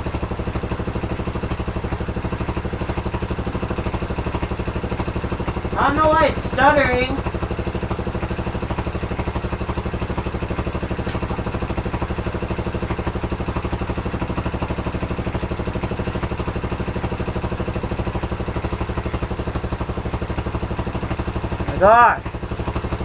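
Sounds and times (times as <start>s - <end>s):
motorbike engine idling: 0.0s - 23.0s
person speaking: 5.8s - 7.2s.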